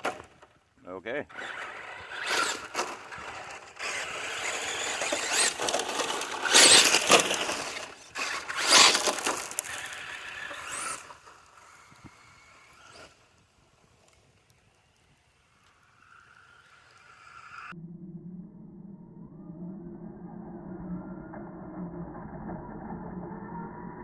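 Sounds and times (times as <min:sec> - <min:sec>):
tyres scrabbling on ground: 0:01.3 - 0:13.1
electric motor whining: 0:01.3 - 0:13.4.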